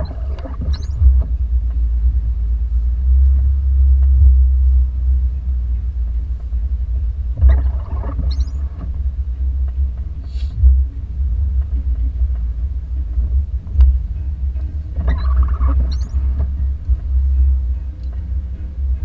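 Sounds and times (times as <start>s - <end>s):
rattle or squeak: 0.0s - 1.2s, 7.4s - 8.9s, 15.0s - 16.7s
car interior rumble: 0.0s - 19.0s.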